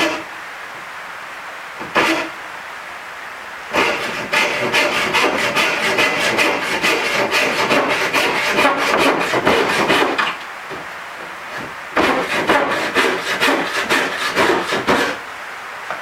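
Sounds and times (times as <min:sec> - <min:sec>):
hand saw cutting wood: 0:00.0 - 0:00.3, 0:01.8 - 0:02.4, 0:03.7 - 0:10.4, 0:11.4 - 0:15.2.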